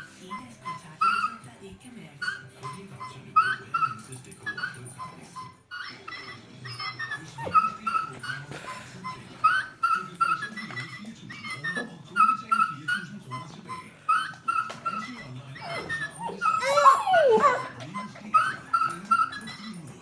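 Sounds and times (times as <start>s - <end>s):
puppy whimpering and yipping: 1.0s - 1.4s, 3.4s - 5.1s, 5.7s - 8.5s, 9.4s - 13.1s, 13.7s - 19.9s
electronic toy voice and sounds: 15.6s - 19.8s.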